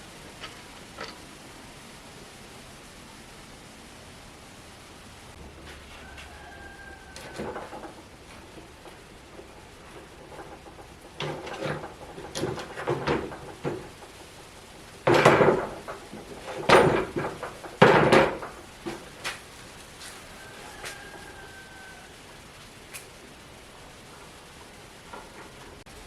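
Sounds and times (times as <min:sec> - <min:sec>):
hard objects knocking and clunking: 0:05.4 - 0:19.5.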